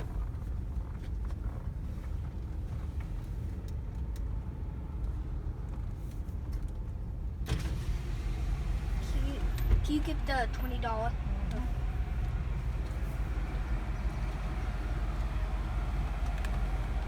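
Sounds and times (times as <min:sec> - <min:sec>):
car engine idling: 0:07.5 - 0:17.0.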